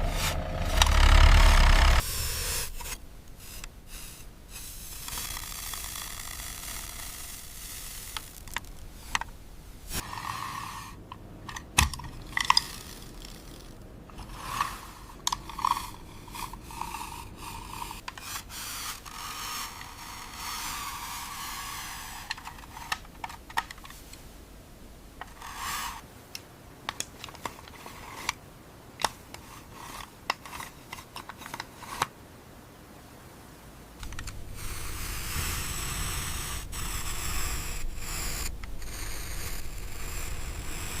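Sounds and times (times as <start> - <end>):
plastic parts clicking: 11.1 - 14.3, 22.3 - 24.0.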